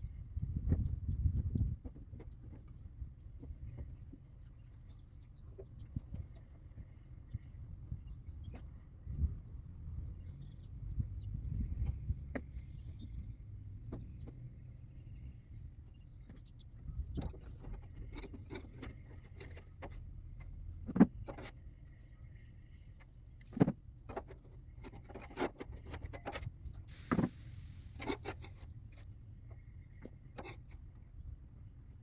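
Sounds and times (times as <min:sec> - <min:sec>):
low steady rumble: 0:25.8 - 0:32.0.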